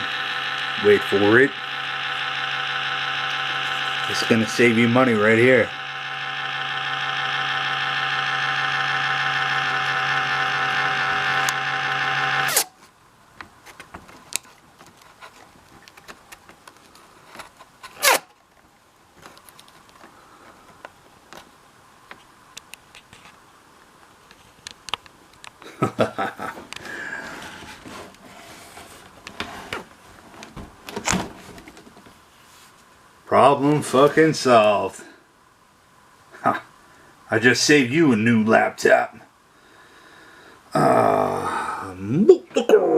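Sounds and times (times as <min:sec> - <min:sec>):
laptop fan buzzing drone: 0:00.0 - 0:12.8
handling clicks and rustling: 0:12.8 - 0:21.5.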